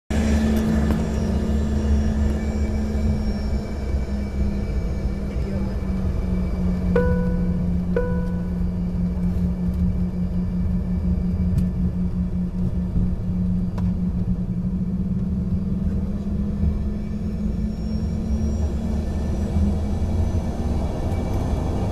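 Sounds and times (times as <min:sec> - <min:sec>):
jet engine cabin rumble: 0:05.2 - 0:17.7
cabin chime: 0:07.0 - 0:08.6.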